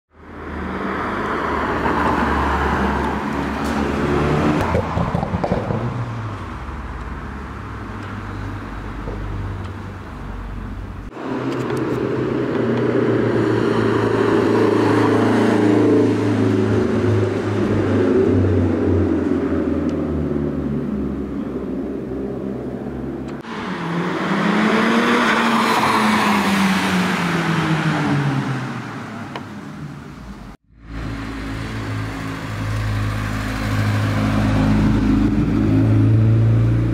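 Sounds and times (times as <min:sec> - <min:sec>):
car engines pulling away: 0:00.2 - 0:36.9
loud steady car engine: 0:06.3 - 0:25.2, 0:27.1 - 0:36.9.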